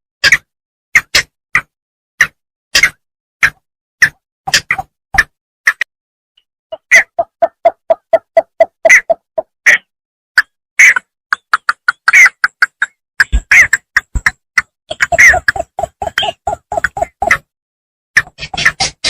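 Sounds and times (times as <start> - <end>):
harsh high bird calls: 14.9 - 17.4.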